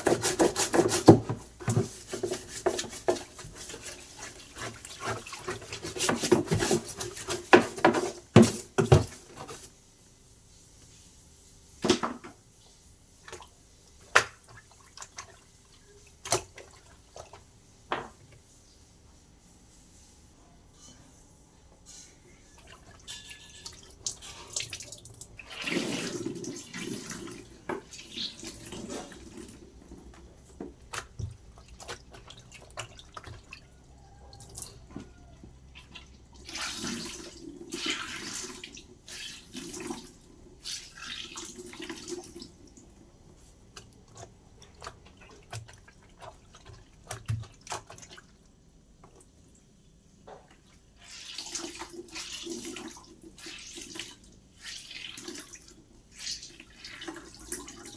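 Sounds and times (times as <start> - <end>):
water splashing and running: 0.0 - 9.7, 22.6 - 49.6, 50.4 - 57.9.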